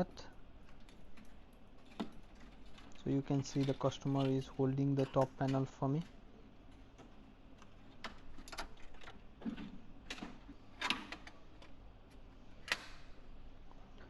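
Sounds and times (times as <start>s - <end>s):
metal oven parts clicking: 1.9s - 6.2s.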